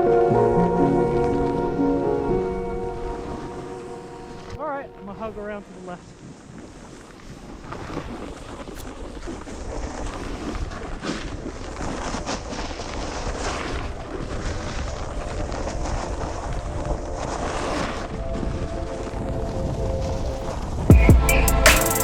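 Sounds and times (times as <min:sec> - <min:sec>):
wind on microphone: 0:00.0 - 0:21.0
snowboard scraping on snow: 0:05.4 - 0:20.8.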